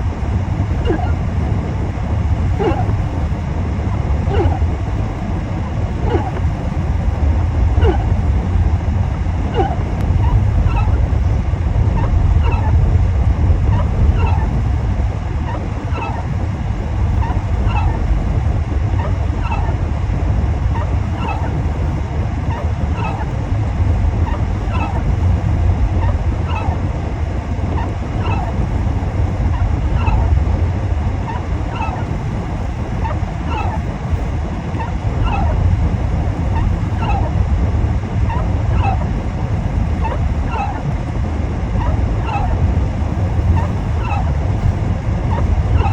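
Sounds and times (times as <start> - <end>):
windshield wiper squeak: 0.7 - 1.2, 2.5 - 3.4, 4.2 - 4.8, 5.6 - 7.0, 7.8 - 8.2, 9.5 - 11.1, 12.0 - 12.7, 13.7 - 14.7, 15.5 - 16.4, 17.2 - 18.3, 20.8 - 21.9, 22.5 - 23.4, 24.3 - 25.3, 27.7 - 28.9.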